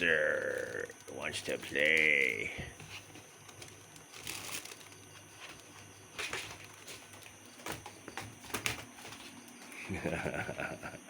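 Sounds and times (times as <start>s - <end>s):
cats scuffling and playing: 1.4s - 10.2s.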